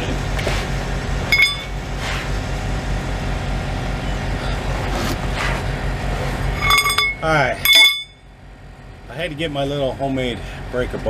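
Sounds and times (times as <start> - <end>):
large vehicle engine idling: 0.0 - 11.0
metallic clink: 1.3 - 1.8, 6.5 - 8.2.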